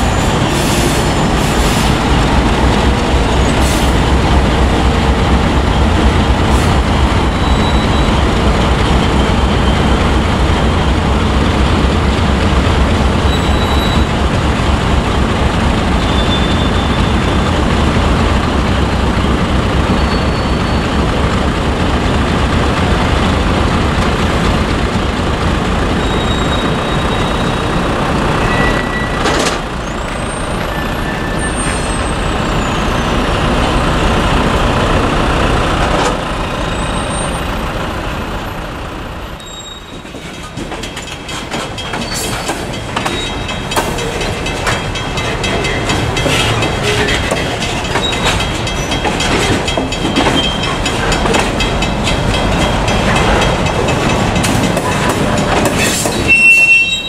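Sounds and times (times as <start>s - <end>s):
diesel locomotive engine: 0.0s - 57.0s
wheel flange squeal: 7.3s - 8.3s, 13.3s - 14.1s, 16.0s - 17.4s, 19.9s - 21.0s, 26.0s - 27.8s, 28.4s - 33.5s, 39.4s - 40.6s, 41.8s - 44.3s, 45.1s - 51.4s, 55.7s - 57.0s
wheels clicking over rail joints: 39.4s - 57.0s.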